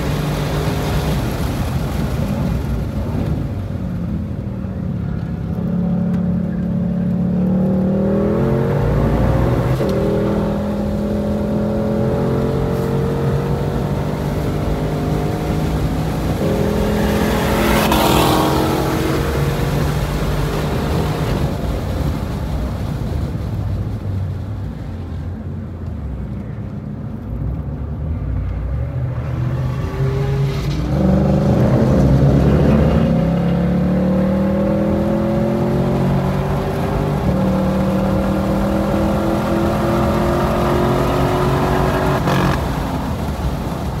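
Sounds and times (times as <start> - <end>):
car engine accelerating: 4.8 - 22.3, 28.9 - 44.0.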